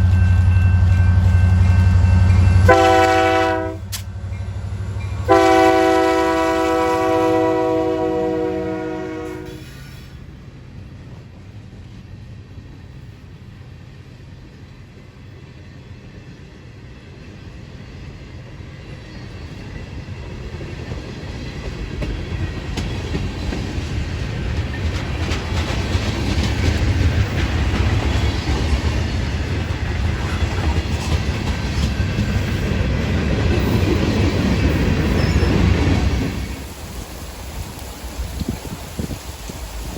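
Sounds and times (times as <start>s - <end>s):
train rumbling past: 0.0s - 39.9s
wheels clicking over rail joints: 19.2s - 39.9s.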